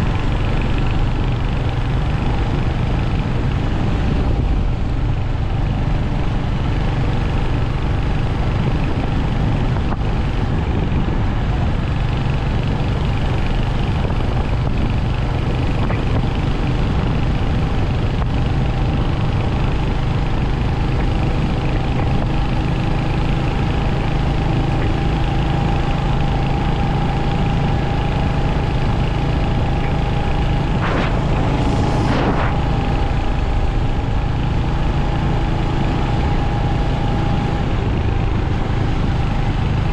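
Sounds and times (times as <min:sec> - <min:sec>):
motorcycle engine running: 0:00.0 - 0:39.9
brief rushing noise: 0:30.2 - 0:34.7.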